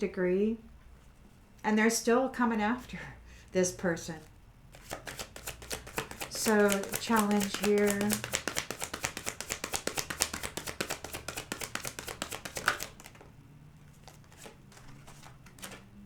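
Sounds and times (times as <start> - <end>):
cards being shuffled: 4.7 - 13.3, 13.9 - 16.0
faint card taps: 4.8 - 13.3.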